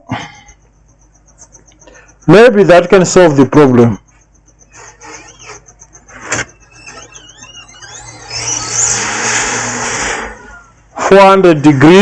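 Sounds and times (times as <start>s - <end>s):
squeaky wavering tones: 0.4s - 11.0s
hissing rush of hot air: 8.7s - 10.5s.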